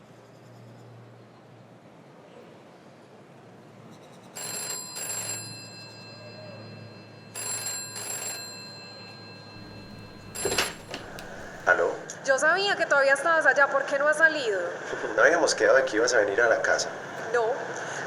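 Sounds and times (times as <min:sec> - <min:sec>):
telephone double ring: 0:04.3 - 0:12.0.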